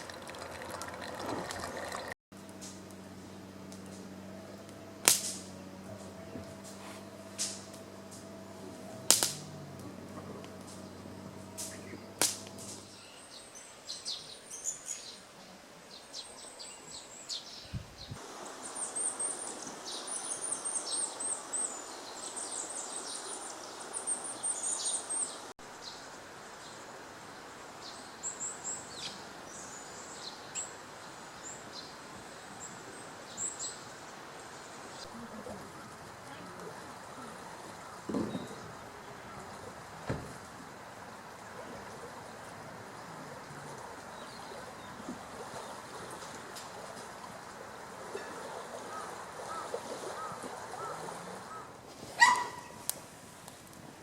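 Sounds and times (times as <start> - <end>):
small birds chirping: 2.8 - 26.8
sharp snaps: 5.0 - 5.5, 7.4 - 8.3, 9.1 - 9.9, 11.6 - 12.8.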